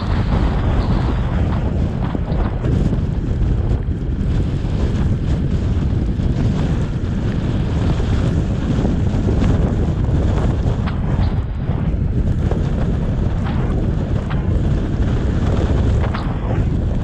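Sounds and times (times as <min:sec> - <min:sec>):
car road noise: 0:00.0 - 0:17.0
wind buffeting microphone: 0:00.0 - 0:17.0.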